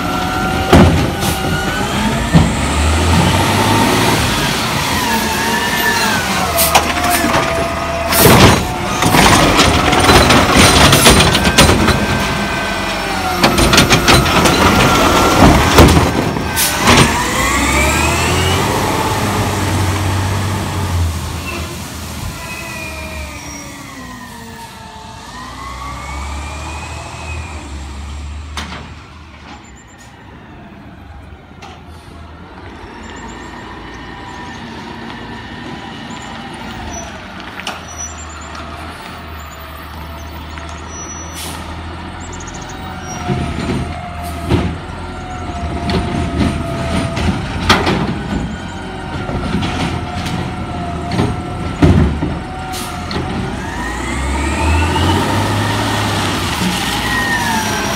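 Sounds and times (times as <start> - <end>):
garbage truck engine: 0.0 - 57.9
metal clanks and bangs: 6.6 - 12.5, 13.4 - 17.3.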